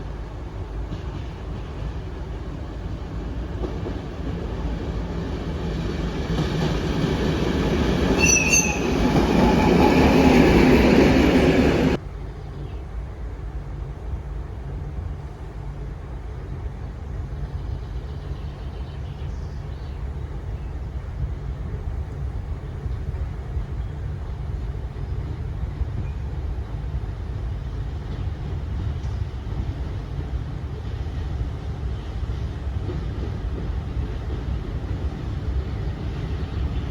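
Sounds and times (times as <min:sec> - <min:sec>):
train passing: 0:00.0 - 0:18.5, 0:19.6 - 0:36.9
high wheel squeal: 0:08.0 - 0:10.7.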